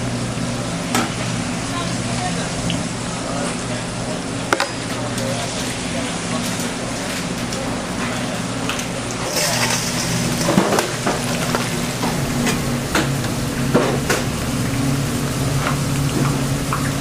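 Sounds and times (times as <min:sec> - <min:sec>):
food sizzling: 0:09.1 - 0:17.0
metal utensils clicking: 0:09.3 - 0:10.9.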